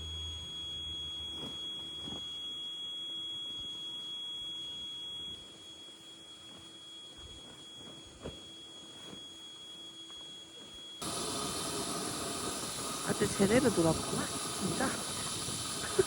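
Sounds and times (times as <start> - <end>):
steady high-pitched tone: 0.0 - 16.0.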